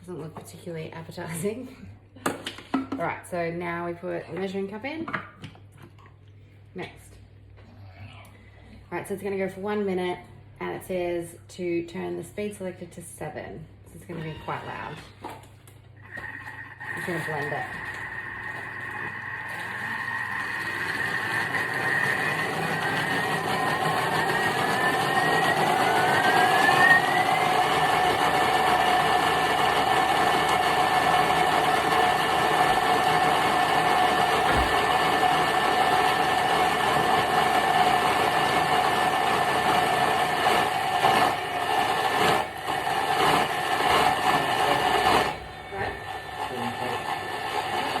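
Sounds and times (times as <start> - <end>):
blender motor whining: 16.0 - 48.0.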